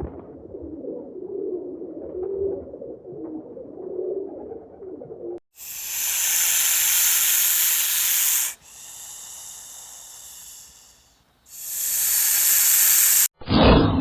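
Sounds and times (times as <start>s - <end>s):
animal hissing: 5.6s - 13.3s.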